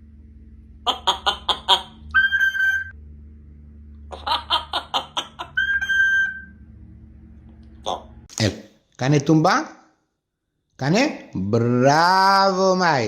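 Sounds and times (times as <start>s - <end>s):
parrot calling: 0.8s - 3.0s, 4.0s - 6.6s, 7.8s - 8.3s
parrot whistle: 0.9s - 3.0s, 4.1s - 6.6s.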